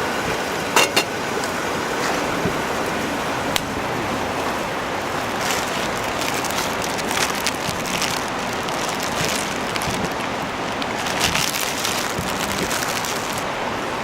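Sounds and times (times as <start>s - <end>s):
food sizzling: 0.0s - 2.1s
fire crackling and popping: 3.5s - 14.0s.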